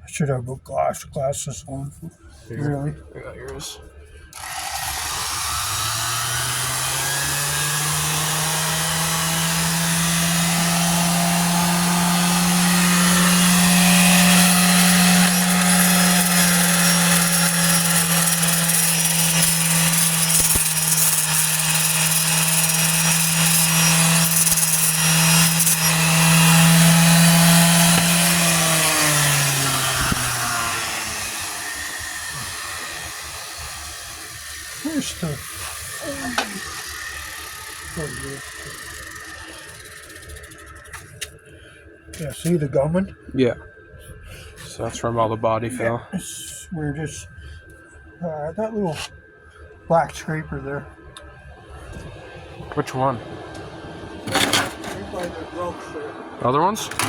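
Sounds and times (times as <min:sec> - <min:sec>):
power tool motor scraping: 0:04.3 - 0:41.2, 0:54.3 - 0:55.4.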